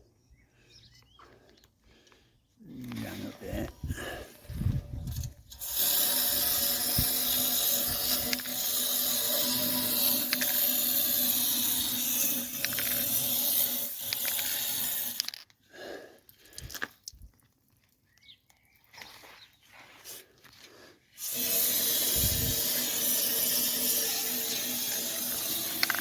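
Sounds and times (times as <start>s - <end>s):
aerosol can spraying hiss: 21.2s - 26.0s.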